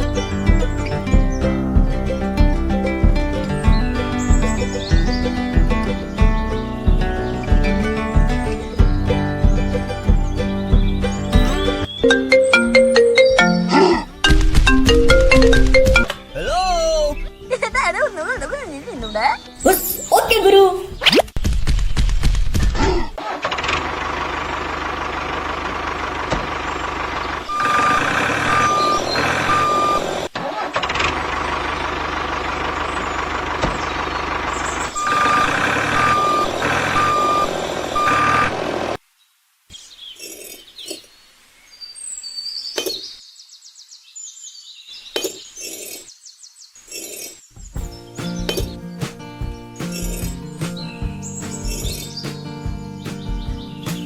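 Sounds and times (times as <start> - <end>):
truck engine running: 0.0 - 19.8, 23.4 - 39.0, 47.8 - 54.0
reversing alarm beeps: 27.5 - 30.2, 35.0 - 38.6.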